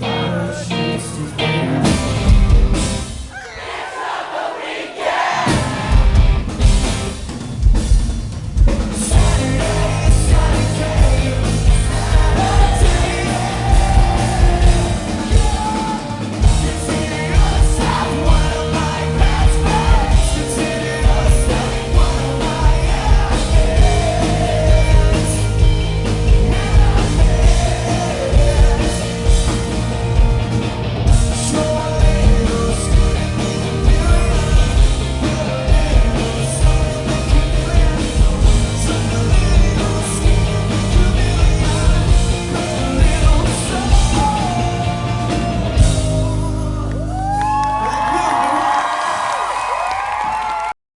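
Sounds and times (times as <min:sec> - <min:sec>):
person singing: 0:00.0 - 0:02.0, 0:09.1 - 0:29.6, 0:31.3 - 0:48.8
bass guitar: 0:00.0 - 0:03.3, 0:05.4 - 0:49.0
electric guitars: 0:00.0 - 0:03.3, 0:05.5 - 0:50.7
rock band playing live: 0:00.0 - 0:03.4, 0:05.1 - 0:49.5
pounding drum kit: 0:01.7 - 0:50.2.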